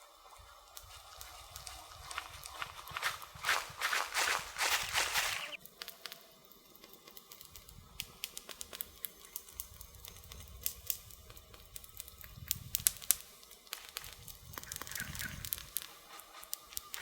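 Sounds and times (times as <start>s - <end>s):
burning wood popping: 0.3s - 17.0s
low rumble of flames: 7.0s - 17.0s.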